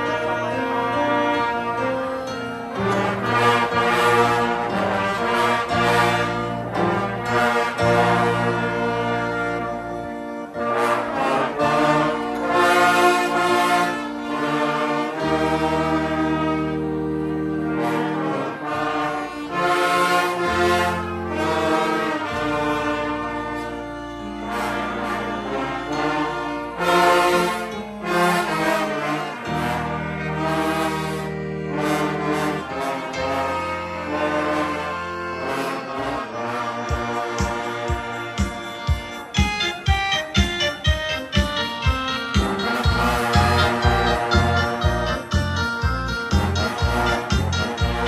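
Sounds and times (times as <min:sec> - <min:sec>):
brass band playing chords: 0:00.0 - 0:48.0.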